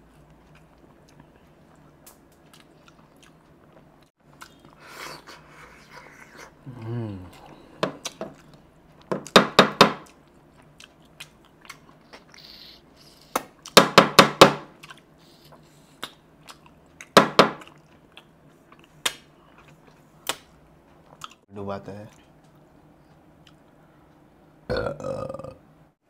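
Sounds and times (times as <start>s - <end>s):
person chewing and smacking: 0.0s - 9.4s, 10.0s - 14.0s, 14.7s - 21.4s, 22.1s - 23.8s.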